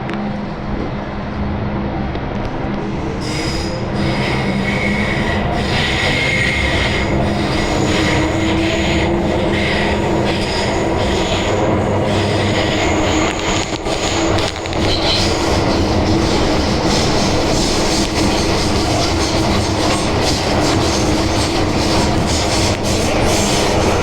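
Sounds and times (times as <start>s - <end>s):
train rumbling through tunnel: 0.0s - 24.0s
high-pitched wheel squeal: 3.0s - 24.0s.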